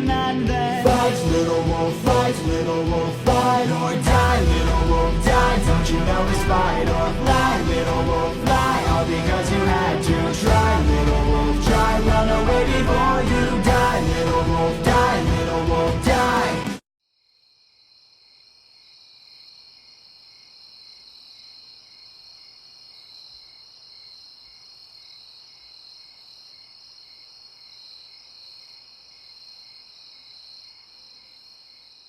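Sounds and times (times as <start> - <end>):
crickets chirping: 17.2 - 32.0.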